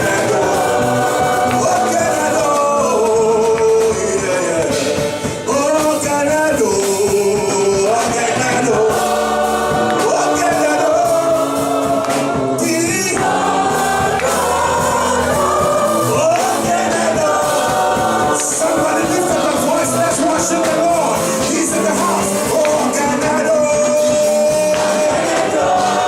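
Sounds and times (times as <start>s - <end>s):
choir and congregation singing: 0.0s - 26.0s
live band playing: 0.0s - 26.0s.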